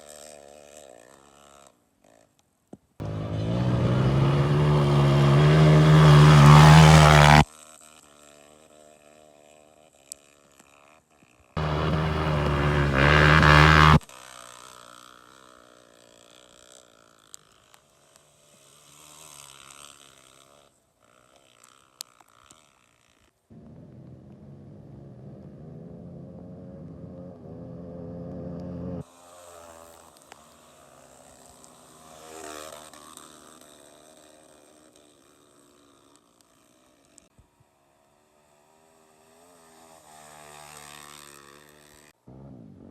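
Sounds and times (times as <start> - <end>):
faint engine idling: 3.0 - 7.2, 11.6 - 14.0, 23.5 - 29.0
motorcycle engine revving hard: 3.0 - 7.5, 11.6 - 14.0, 23.5 - 29.0, 38.7 - 42.9.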